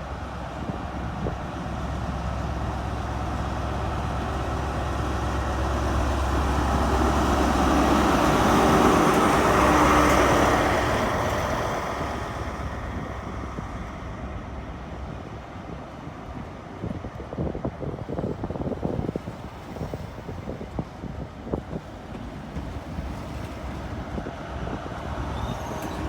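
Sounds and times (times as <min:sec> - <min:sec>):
train diesel engine passing: 0:00.0 - 0:26.0.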